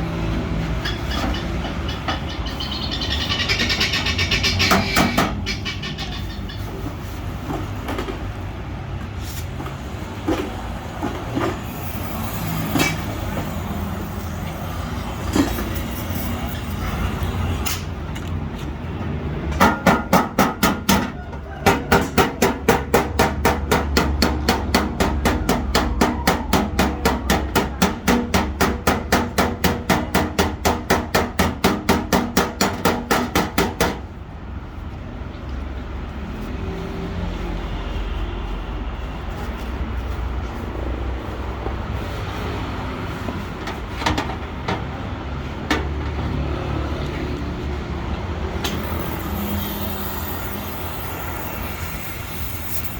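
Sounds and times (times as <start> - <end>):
low workshop background: 3.2 - 5.9, 6.6 - 52.9
hammer on sheet metal: 3.4 - 5.8, 19.6 - 34.1.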